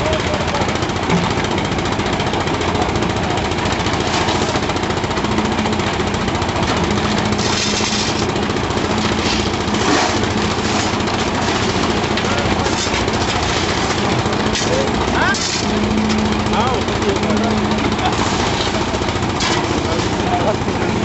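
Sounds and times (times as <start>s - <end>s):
construction machinery engines running: 0.0s - 21.0s.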